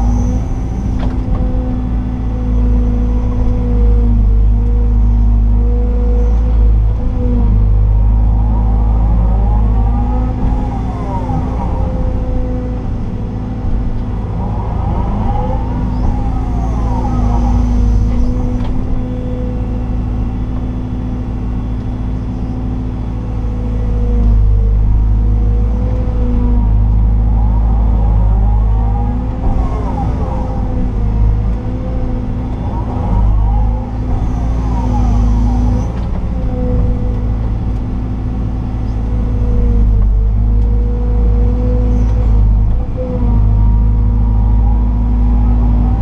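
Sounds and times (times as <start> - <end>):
excavator diesel engine: 0.0 - 46.0
hydraulic whine: 8.2 - 38.2.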